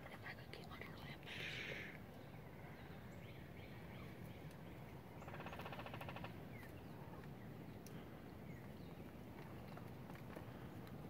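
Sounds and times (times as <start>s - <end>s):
faint songbird chirps: 0.0s - 9.8s
bird rapid rattling call: 5.3s - 6.4s.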